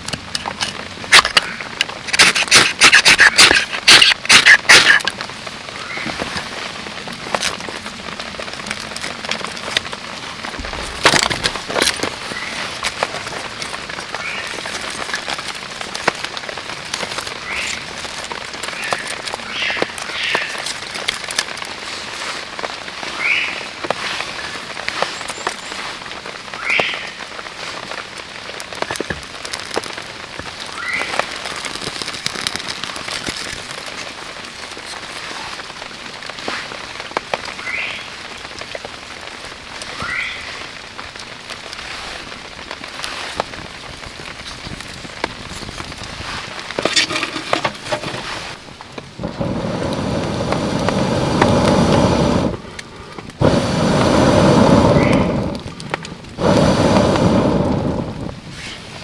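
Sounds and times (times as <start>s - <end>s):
steady rain: 0.0s - 59.0s
dense rushing noise: 46.8s - 59.0s.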